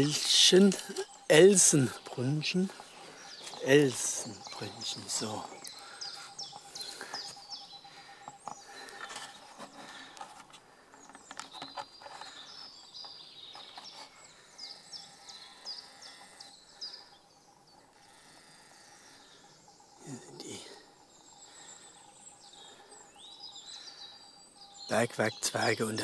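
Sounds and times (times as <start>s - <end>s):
faint woodland background: 0.0s - 26.0s
songbird chirping: 0.0s - 26.0s.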